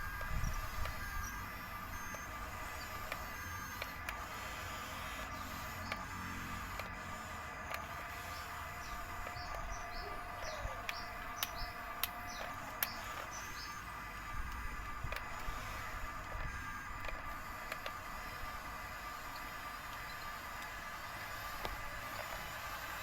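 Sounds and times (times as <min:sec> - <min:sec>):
sharp clicks: 0:05.3 - 0:07.0, 0:07.6 - 0:13.8
high bird chirps: 0:08.3 - 0:13.8.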